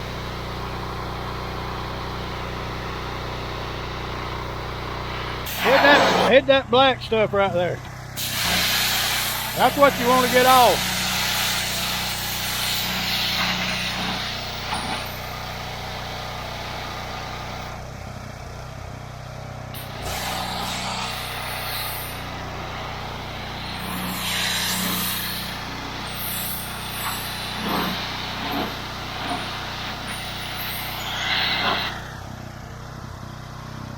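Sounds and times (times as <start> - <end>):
pressure washer humming: 0.0 - 33.8
water jet hissing: 5.4 - 6.3, 8.2 - 15.2, 19.8 - 32.3.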